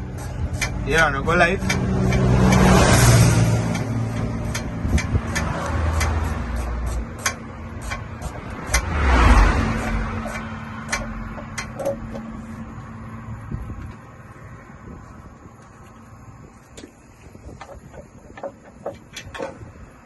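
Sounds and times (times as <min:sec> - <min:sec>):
vehicle engine humming: 0:00.0 - 0:20.0
sharp clicks: 0:01.6 - 0:02.8.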